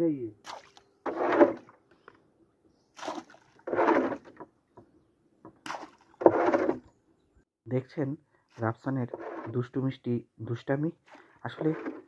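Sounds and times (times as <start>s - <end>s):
water splashing and sloshing: 0.4s - 1.9s, 2.9s - 4.6s, 5.5s - 6.9s, 11.1s - 12.0s.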